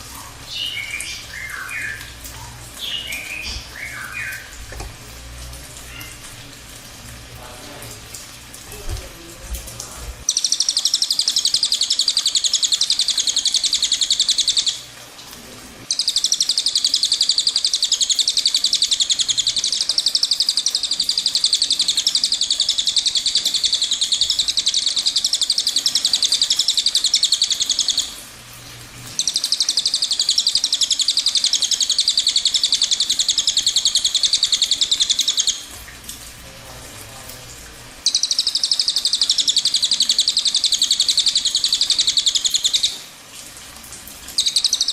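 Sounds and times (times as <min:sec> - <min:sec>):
bird singing rapid trills: 0:00.5 - 0:02.2, 0:02.8 - 0:04.6, 0:10.3 - 0:14.8, 0:15.9 - 0:28.2, 0:29.2 - 0:35.7, 0:38.0 - 0:43.0, 0:44.4 - 0:44.9.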